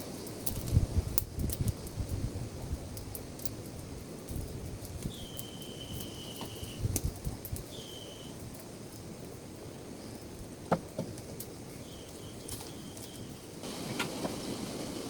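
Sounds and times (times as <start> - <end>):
high-pitched insect call: 5.0 - 6.9, 7.6 - 8.4.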